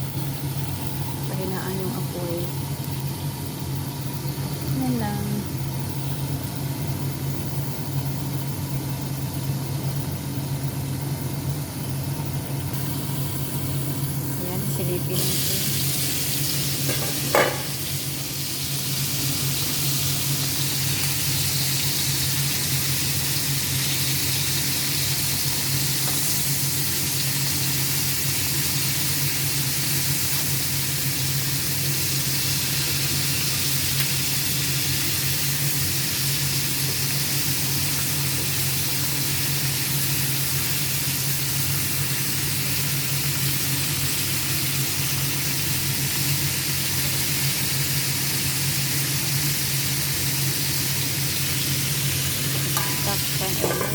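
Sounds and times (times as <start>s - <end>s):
food sizzling in a pan: 12.7s - 53.9s
pan lid clink: 16.9s - 17.8s, 52.6s - 53.9s.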